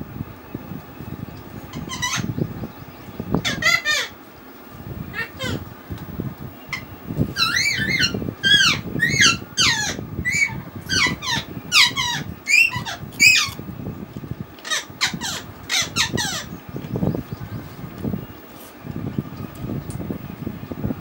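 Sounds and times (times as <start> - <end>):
bird squeaky chirps: 6.7 - 13.6.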